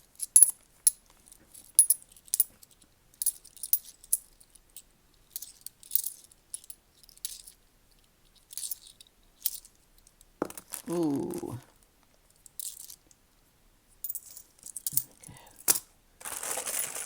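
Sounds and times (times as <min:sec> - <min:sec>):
coins clinking: 0:00.2 - 0:00.5, 0:14.0 - 0:17.0.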